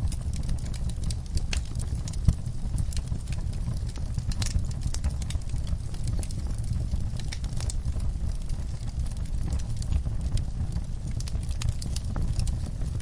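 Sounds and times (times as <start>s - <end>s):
fire pops: 0.0s - 13.0s
steady low rumble: 0.0s - 13.0s
wood fire crackling: 0.0s - 13.0s.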